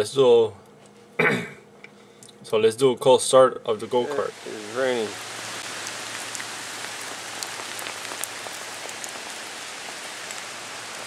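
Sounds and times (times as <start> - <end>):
steady rain falling: 3.7 - 11.0
ticks of single raindrops: 5.3 - 11.0.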